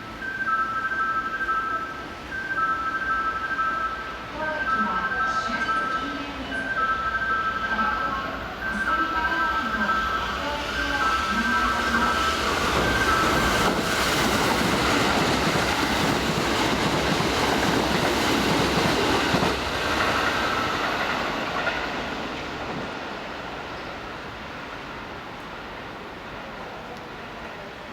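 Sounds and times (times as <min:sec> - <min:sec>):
electric train passing: 0:00.0 - 0:27.9.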